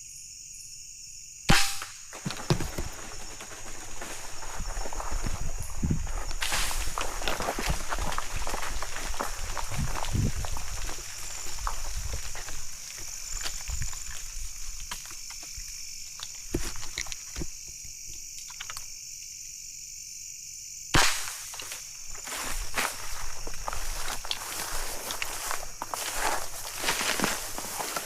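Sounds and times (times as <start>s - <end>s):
night insects trilling: 0.0s - 28.0s
gunshot: 1.5s - 2.0s, 21.0s - 21.5s
footsteps through vegetation: 2.4s - 17.0s, 21.3s - 28.0s.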